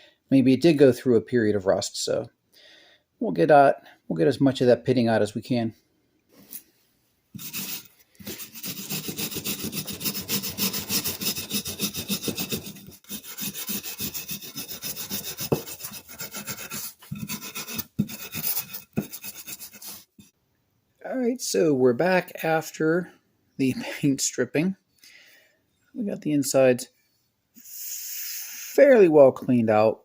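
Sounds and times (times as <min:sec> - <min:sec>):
metal rubbing on sandpaper: 0:07.4 - 0:20.2.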